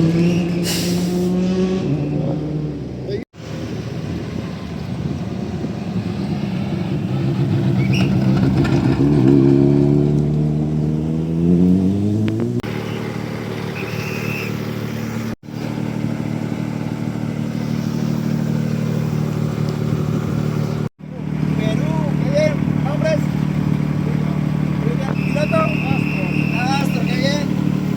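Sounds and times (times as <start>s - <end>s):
rally car engine accelerating: 6.1s - 27.9s.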